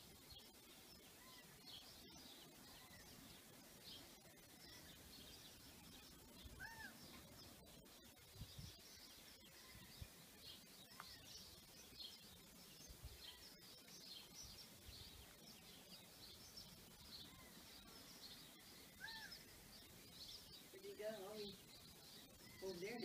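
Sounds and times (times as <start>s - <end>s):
faint birds chirping: 0.0s - 23.0s
rising and falling bird call: 6.5s - 7.2s, 17.2s - 19.5s.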